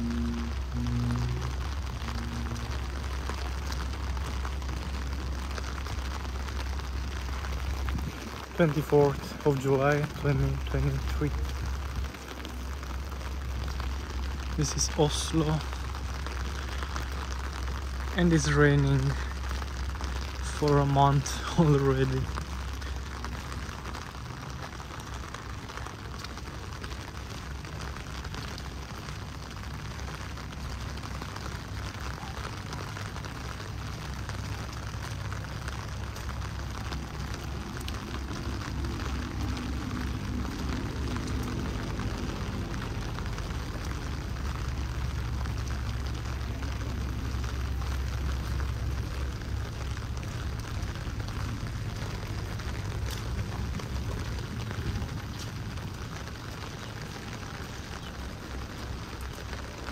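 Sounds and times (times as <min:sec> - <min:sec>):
faint hum: 0:00.0 - 0:04.7
low rumble: 0:00.0 - 0:14.6, 0:33.2 - 0:57.4
heavy rain falling: 0:00.0 - 0:59.9.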